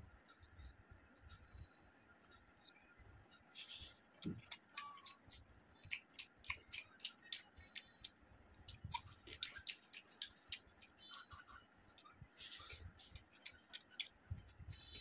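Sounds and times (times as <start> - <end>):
crunchy food chewing: 3.6 - 10.9
wet mouth clicks: 3.8 - 11.0, 12.5 - 14.2.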